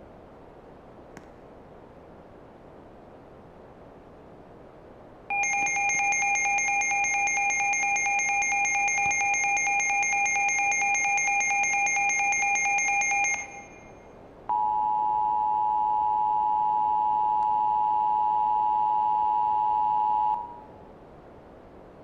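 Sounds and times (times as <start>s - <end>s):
rapid electronic beeping: 5.3s - 13.9s
two-tone emergency alert signal: 5.3s - 13.9s, 14.5s - 20.7s.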